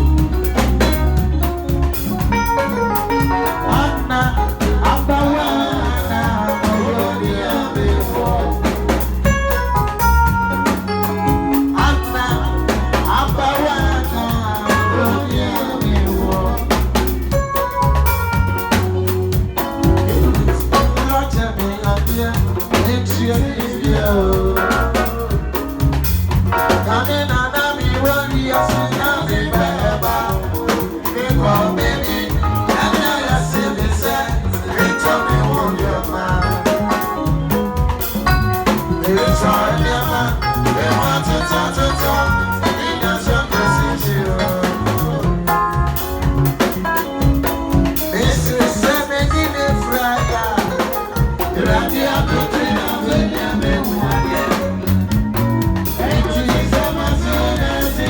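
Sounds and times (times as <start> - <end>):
loud music with heavy bass: 0.0 - 58.0.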